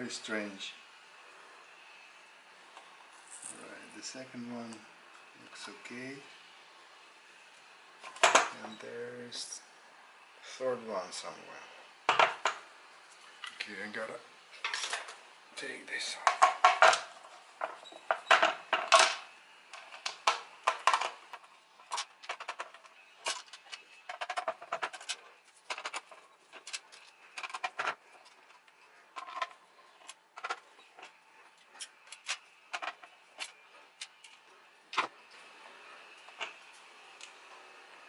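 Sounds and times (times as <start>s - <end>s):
plastic and metal parts clattering: 8.1s - 8.5s, 14.6s - 15.2s, 16.3s - 19.2s, 19.8s - 31.2s, 31.8s - 35.1s.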